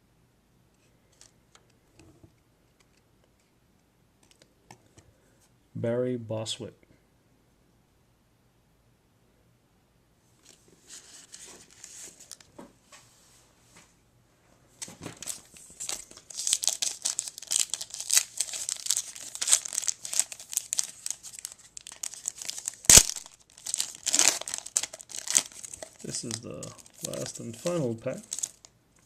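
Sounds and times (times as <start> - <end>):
wrapper crinkling and tearing: 15.1 - 28.7.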